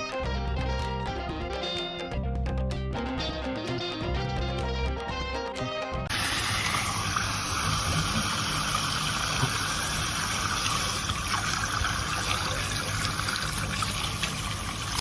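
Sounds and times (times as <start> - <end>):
running water rushing: 6.1 - 15.0.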